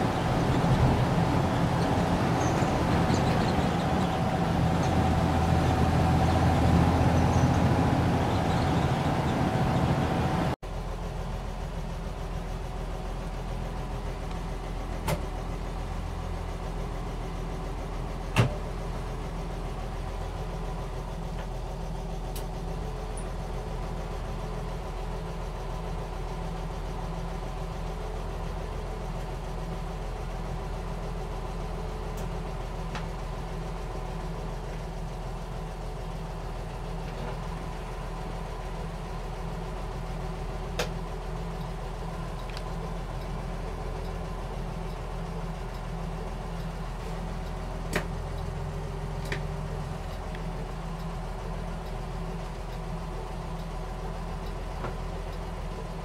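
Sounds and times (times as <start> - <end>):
road noise: 0.0 - 11.5, 30.2 - 56.0
car engine while driving: 0.0 - 56.0
engine idling: 0.0 - 56.0.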